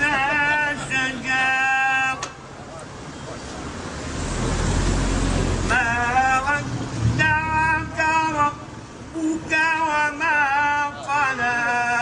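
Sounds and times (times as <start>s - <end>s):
person chanting: 5.6s - 12.0s.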